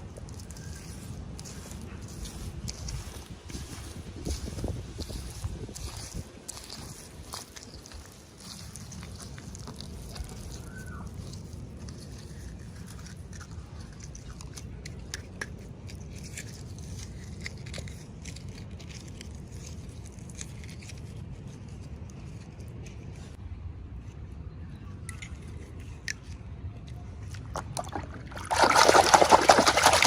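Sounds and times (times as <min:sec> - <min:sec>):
toy packaging crinkling: 0:00.0 - 0:21.2.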